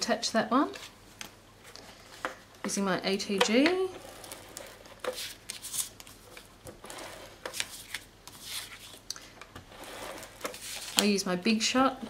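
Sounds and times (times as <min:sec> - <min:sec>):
paper rustling: 0:04.2 - 0:06.5, 0:07.4 - 0:09.1, 0:09.9 - 0:11.2.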